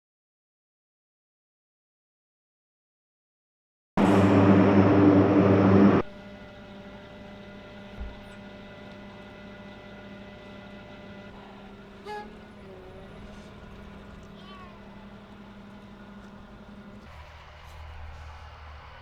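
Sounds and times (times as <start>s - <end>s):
loud aircraft engine noise: 4.0s - 19.0s
steady engine hum: 4.0s - 19.0s
short squeak: 12.0s - 12.7s.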